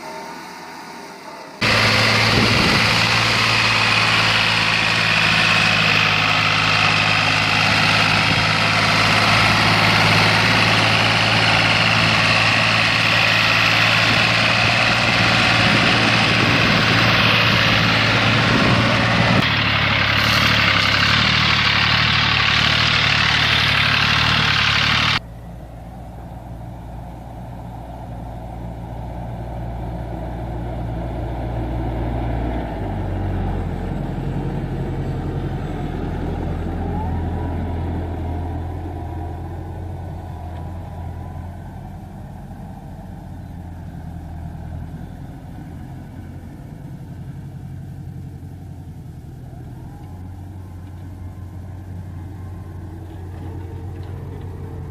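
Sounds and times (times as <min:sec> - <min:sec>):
small tractor engines running: 0:01.5 - 0:54.9.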